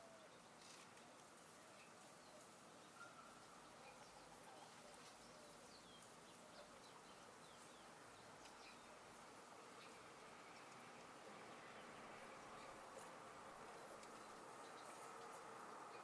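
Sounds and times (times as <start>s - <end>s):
faint steady hiss: 0.0s - 16.0s
faint bird chirps: 1.8s - 7.9s.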